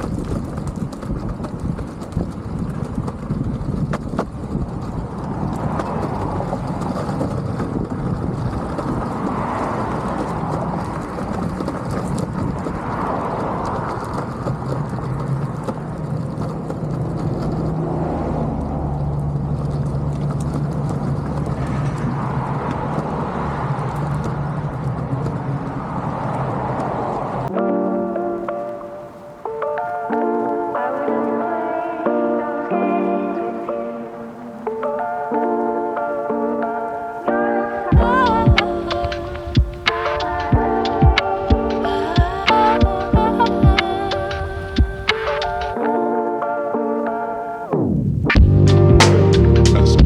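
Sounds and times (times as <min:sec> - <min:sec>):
longboard wheels rolling on pavement: 0:00.0 - 0:50.0
low hum: 0:48.4 - 0:50.0.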